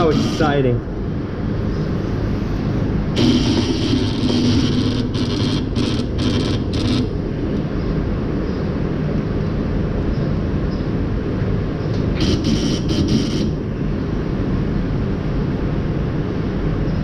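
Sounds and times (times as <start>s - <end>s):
milking robot buzzing hum: 0.0s - 1.0s, 1.6s - 7.6s, 12.1s - 13.8s.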